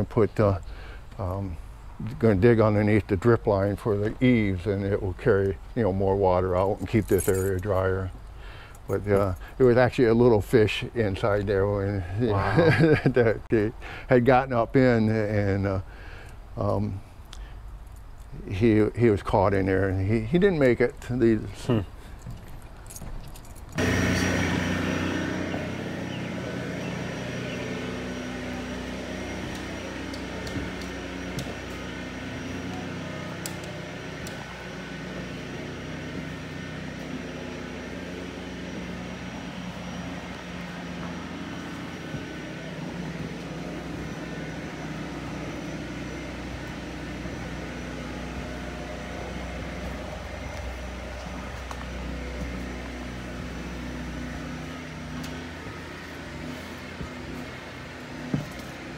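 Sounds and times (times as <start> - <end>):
motor-driven machine humming: 23.7 - 58.9.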